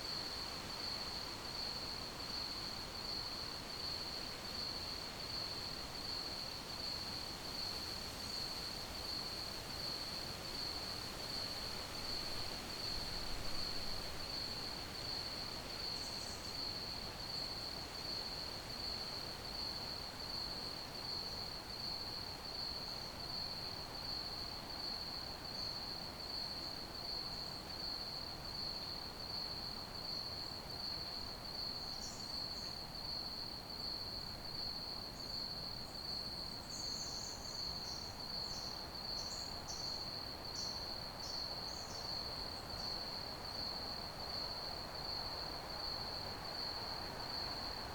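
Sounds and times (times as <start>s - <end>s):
crickets chirping: 27.0s - 47.9s.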